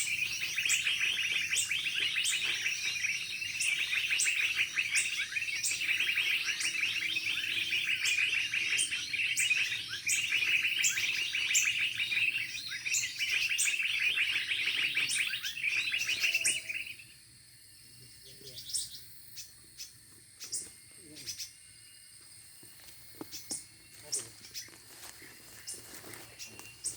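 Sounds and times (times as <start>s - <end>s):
songbird twittering: 0.0s - 22.1s, 23.2s - 26.9s.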